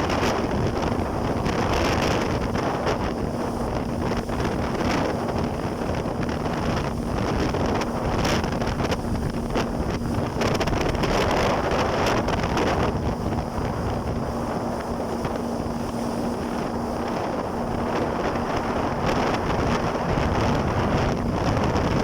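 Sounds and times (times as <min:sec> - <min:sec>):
jet ski engine running: 0:00.0 - 0:22.0
wind buffeting microphone: 0:00.0 - 0:22.0.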